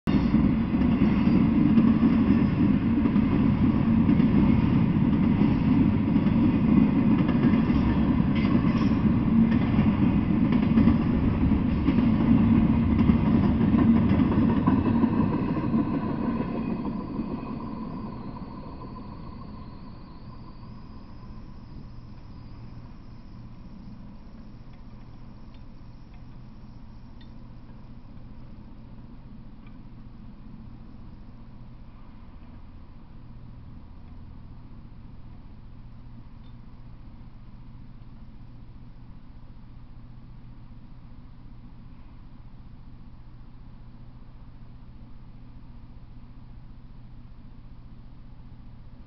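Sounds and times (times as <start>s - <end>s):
freight train wheels on rails: 0.1s - 32.8s.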